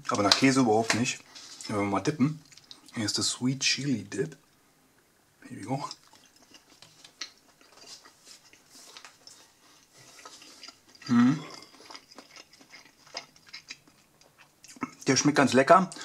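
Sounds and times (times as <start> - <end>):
person chewing wet smacks: 2.4 - 3.0, 5.9 - 15.1
person humming: 11.1 - 11.5.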